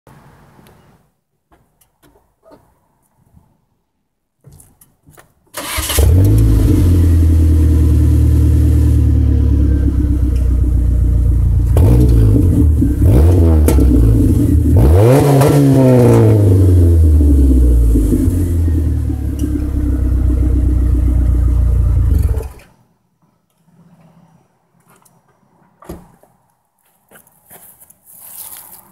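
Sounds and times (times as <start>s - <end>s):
car engine starting and revving: 5.6s - 22.6s.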